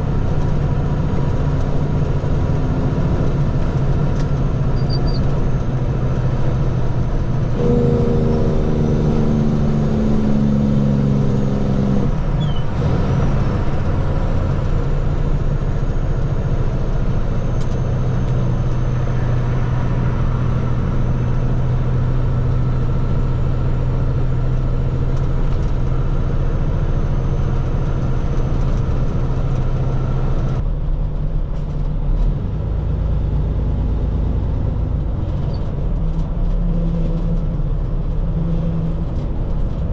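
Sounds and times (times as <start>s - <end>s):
truck engine running: 0.0s - 39.9s
higher pitched engine note: 7.2s - 14.2s, 14.8s - 24.0s.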